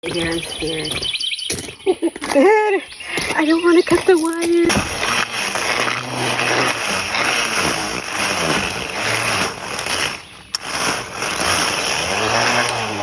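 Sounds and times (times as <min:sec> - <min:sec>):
string trimmer whirring: 0:00.0 - 0:01.0, 0:01.6 - 0:13.0
trimmer starting click: 0:04.7 - 0:13.0.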